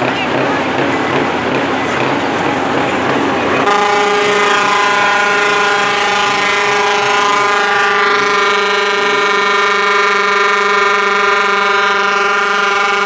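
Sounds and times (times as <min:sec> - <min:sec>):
truck air horn blast: 0:03.5 - 0:13.0.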